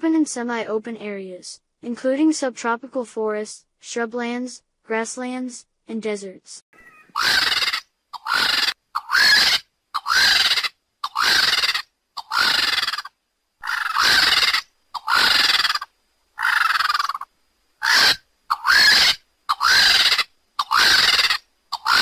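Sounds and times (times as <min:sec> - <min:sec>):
bird screeching calls: 0:06.8 - 0:22.0.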